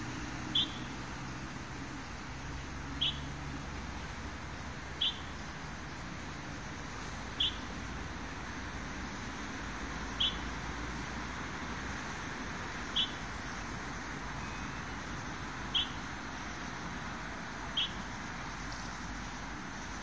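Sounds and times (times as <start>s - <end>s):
bird chirping: 0.5s - 1.0s, 2.9s - 3.4s, 4.9s - 6.0s, 7.3s - 7.7s, 10.1s - 10.4s, 12.8s - 13.7s, 14.4s - 16.8s, 17.7s - 19.1s.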